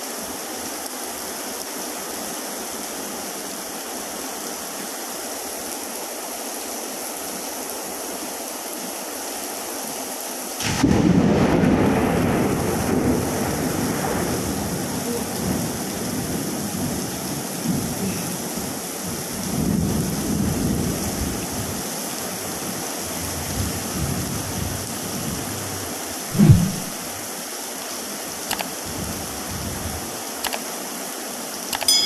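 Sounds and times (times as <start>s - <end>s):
heavy rain hiss: 0.0s - 31.8s
thunder crack and rumble: 10.6s - 17.9s.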